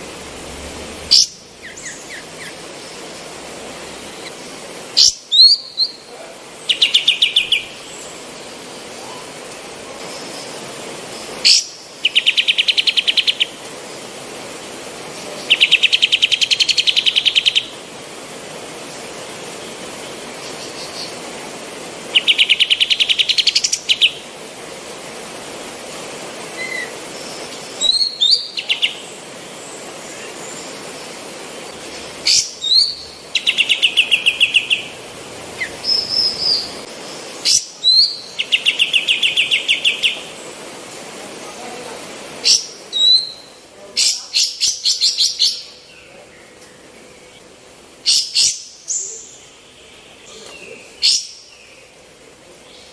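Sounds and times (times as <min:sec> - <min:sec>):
steady background hiss: 0:00.0 - 0:52.9
songbird whistling and trilling: 0:32.3 - 0:34.8.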